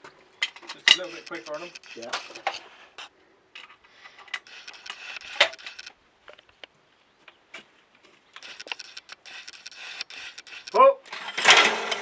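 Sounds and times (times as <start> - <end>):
shotgun handling clicks and rustles: 0.4 - 6.7, 7.3 - 12.0.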